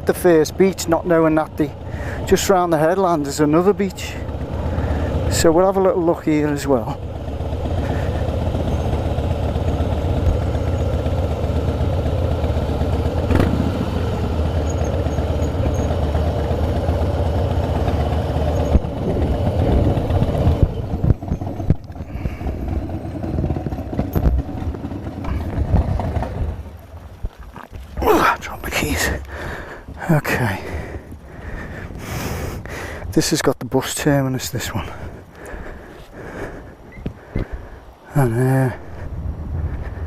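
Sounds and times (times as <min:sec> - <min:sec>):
engine running unevenly: 0:00.0 - 0:32.4
motorcycle engine rumbling: 0:00.0 - 0:33.0.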